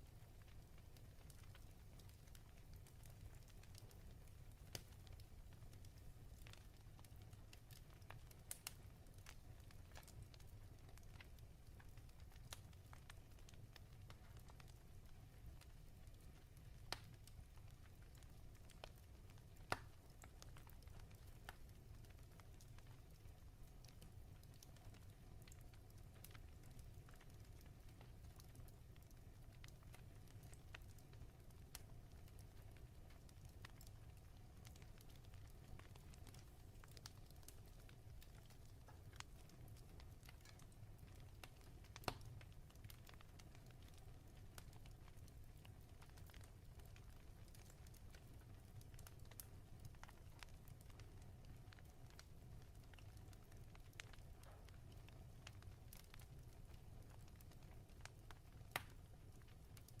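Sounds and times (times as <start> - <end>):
fireplace crackling: 0.0 - 60.0
faint clicks: 57.4 - 59.0.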